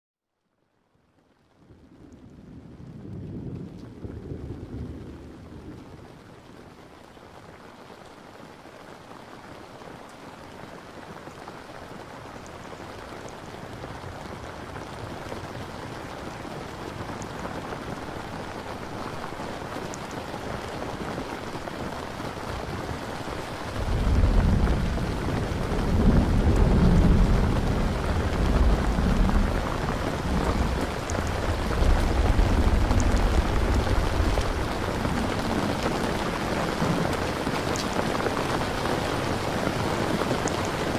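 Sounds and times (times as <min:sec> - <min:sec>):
steady rain: 0:00.5 - 0:40.9
thunder rumbling: 0:01.7 - 0:06.4, 0:23.3 - 0:40.9.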